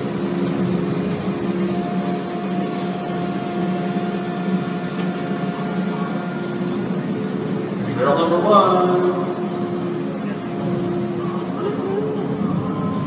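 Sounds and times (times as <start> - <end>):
excavator engine and hydraulics hum: 0.0 - 13.0
steady higher tone: 0.0 - 13.0.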